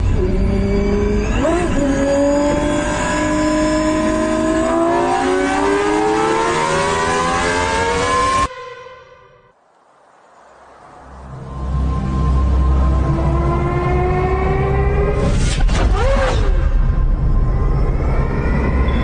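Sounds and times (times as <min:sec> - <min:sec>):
truck engine accelerating: 0:11.2 - 0:19.0.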